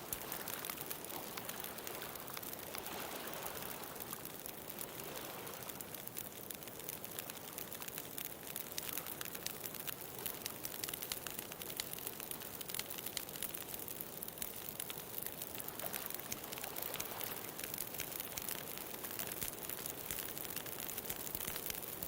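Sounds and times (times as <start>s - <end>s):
ocean waves: 0.0s - 6.0s, 15.6s - 19.2s
bonfire crackling and popping: 0.0s - 22.0s.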